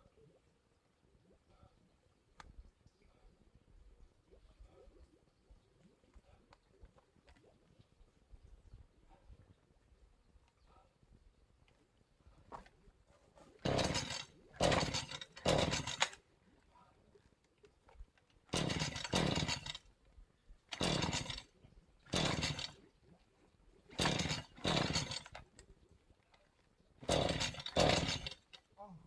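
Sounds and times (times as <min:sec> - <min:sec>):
hand saw cutting: 0:13.6 - 0:16.2, 0:18.5 - 0:19.8, 0:20.7 - 0:21.4, 0:22.1 - 0:22.8, 0:23.9 - 0:25.4, 0:27.0 - 0:28.5.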